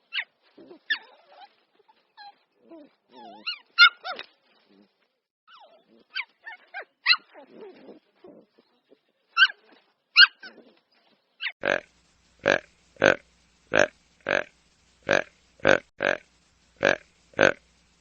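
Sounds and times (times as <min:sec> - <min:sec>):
dog yelping and whimpering: 0:00.1 - 0:01.6, 0:02.2 - 0:04.2, 0:05.5 - 0:08.0, 0:09.4 - 0:10.8
animal calling: 0:11.6 - 0:17.6.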